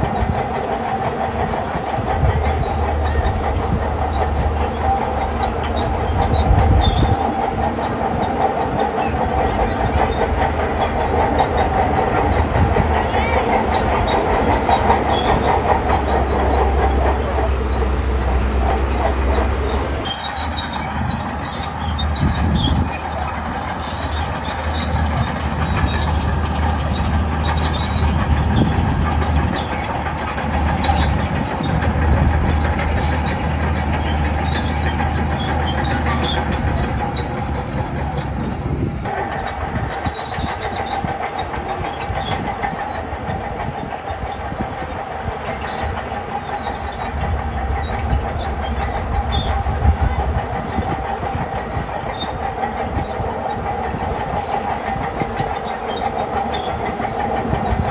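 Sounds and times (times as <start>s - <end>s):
diesel engine under load: 0.0s - 57.9s
steel tracks rattling: 0.0s - 57.9s.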